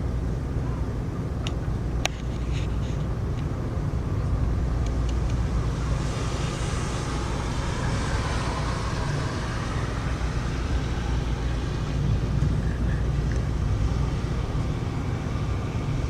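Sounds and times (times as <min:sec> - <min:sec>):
low rumble: 0:03.2 - 0:16.0
heavy rain falling: 0:04.9 - 0:16.0.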